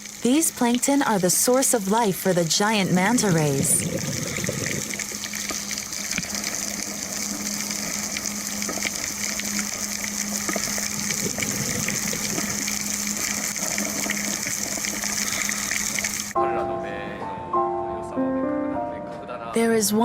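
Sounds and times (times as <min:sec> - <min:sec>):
steady low hum: 0:00.0 - 0:16.4
snapping shrimp clicks underwater: 0:03.9 - 0:16.4.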